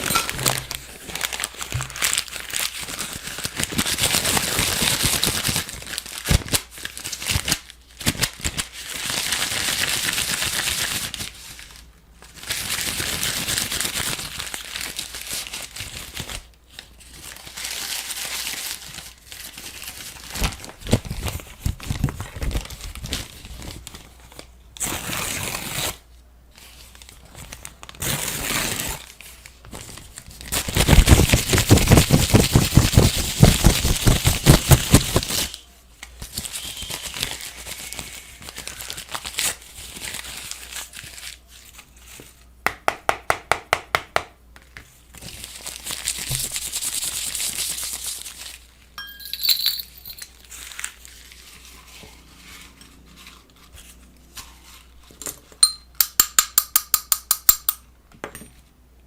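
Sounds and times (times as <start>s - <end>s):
crinkling and crumpling: 0.0s - 9.4s, 49.7s - 55.2s.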